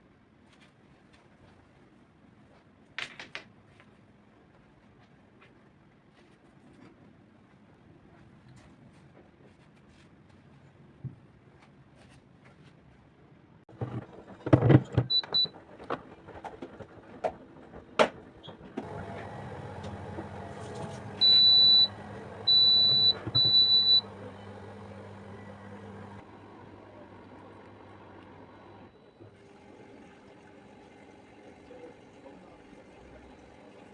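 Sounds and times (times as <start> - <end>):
appliance humming: 18.5 - 33.9.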